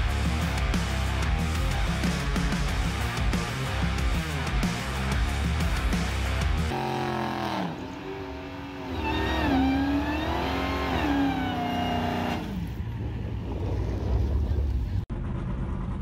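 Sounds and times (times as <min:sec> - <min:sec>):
car engine revving hard: 0:06.7 - 0:12.7.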